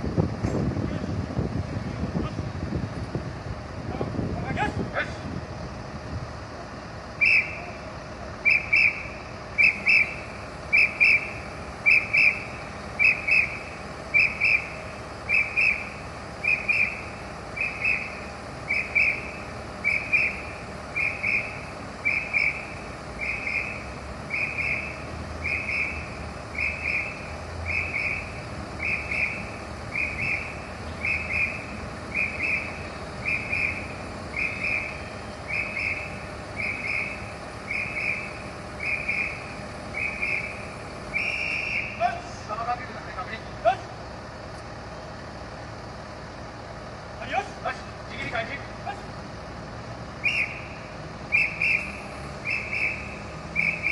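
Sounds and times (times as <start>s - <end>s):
high-pitched double pip signal: 8.4s - 42.3s.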